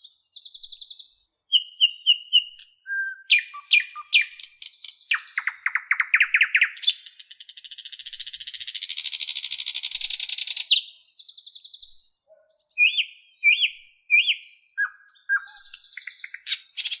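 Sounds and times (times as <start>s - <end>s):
small bird singing: 0.0s - 17.0s.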